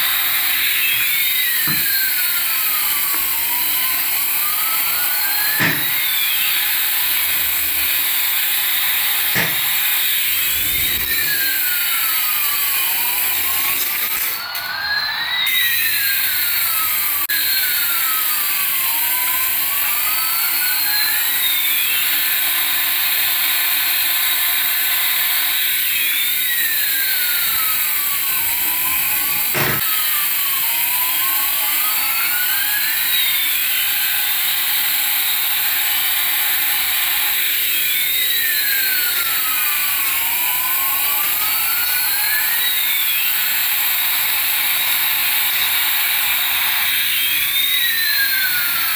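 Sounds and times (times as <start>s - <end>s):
sharp click: 5.5s - 6.6s, 9.0s - 10.1s, 29.4s - 29.9s.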